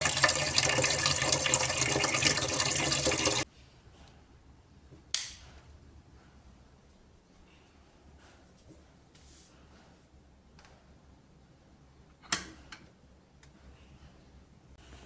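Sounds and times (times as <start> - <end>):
tap water running: 0.0 - 3.4.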